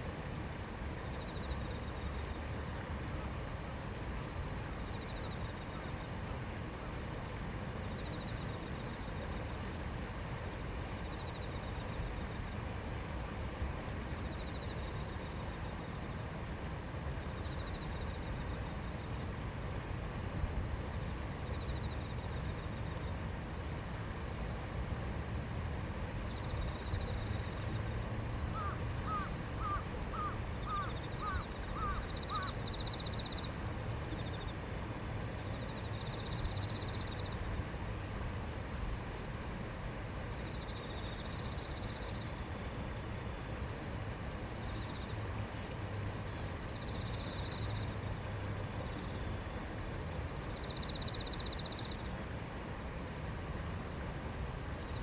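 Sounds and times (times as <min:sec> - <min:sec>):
babbling stream: 0:18.3 - 0:50.8
bird calling: 0:28.5 - 0:32.7.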